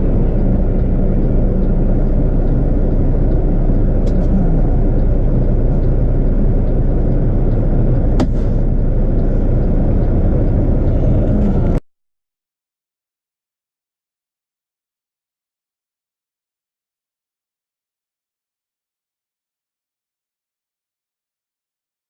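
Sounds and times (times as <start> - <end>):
vehicle engine and road noise: 0.0 - 11.9.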